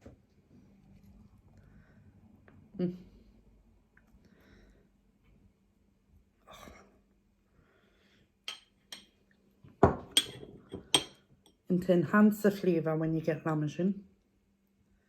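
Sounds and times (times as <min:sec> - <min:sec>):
person breathing: 0:04.2 - 0:05.0, 0:07.5 - 0:08.4.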